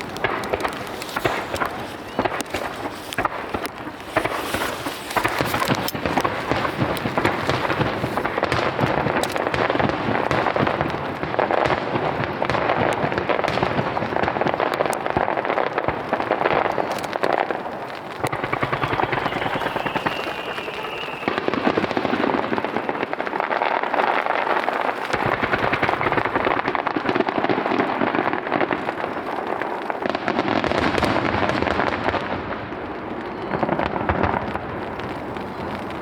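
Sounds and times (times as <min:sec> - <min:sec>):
fireworks booming and crackling: 0:00.0 - 0:36.0.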